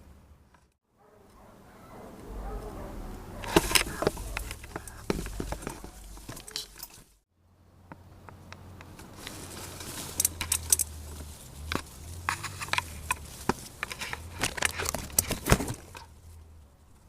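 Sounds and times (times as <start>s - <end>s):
steady low rumble: 2.1s - 7.2s.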